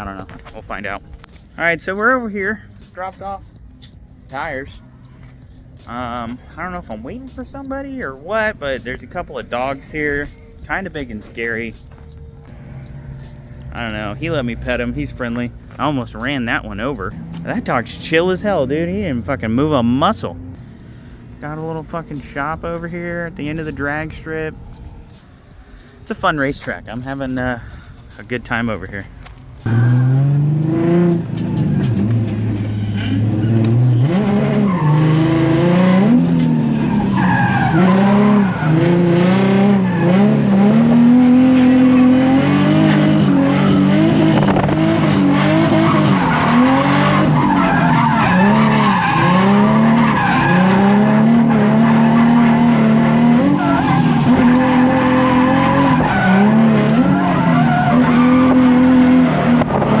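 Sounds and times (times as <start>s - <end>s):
car engine revving: 3.5s - 25.6s, 29.6s - 60.0s
tire squeal: 29.6s - 60.0s.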